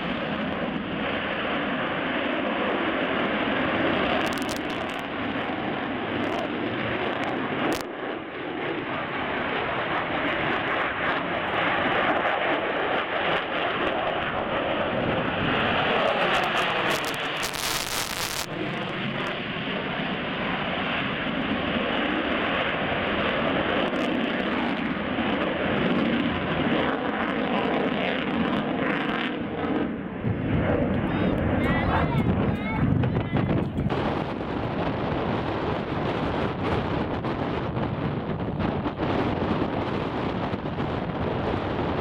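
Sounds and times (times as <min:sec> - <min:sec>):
airplane flying past: 0:18.5 - 0:33.0.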